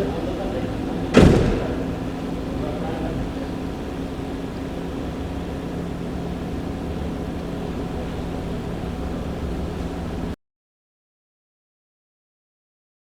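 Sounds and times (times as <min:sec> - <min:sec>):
mechanical hum: 0:00.0 - 0:10.4.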